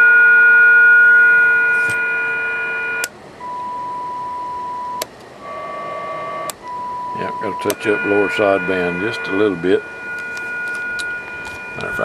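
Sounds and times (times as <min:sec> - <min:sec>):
radio speaker whistle tones: 0:03.4 - 0:12.0.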